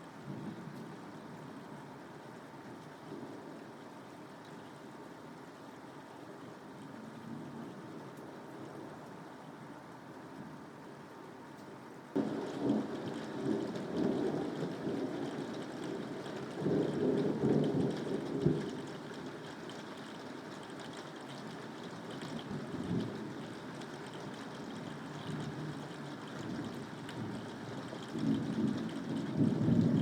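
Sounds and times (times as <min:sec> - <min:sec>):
steady rainfall: 0:00.0 - 0:30.0
thunder rumbling: 0:12.2 - 0:19.0.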